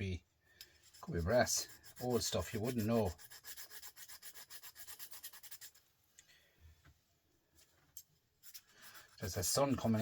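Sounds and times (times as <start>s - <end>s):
file scraping brass rod: 0.6s - 5.8s.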